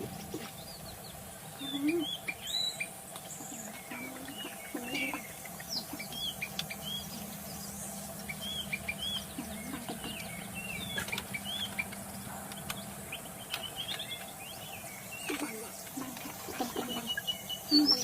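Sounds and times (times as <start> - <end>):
bird whistling song: 0.2 - 18.0
bird clicks: 6.4 - 6.8, 9.9 - 12.9, 13.5 - 14.3.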